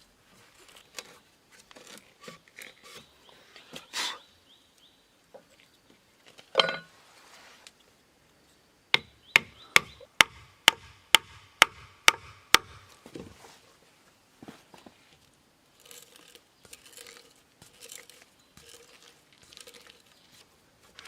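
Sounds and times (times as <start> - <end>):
rustle: 0.0 - 10.2, 12.4 - 21.0
hand tool striking wood: 8.9 - 13.2.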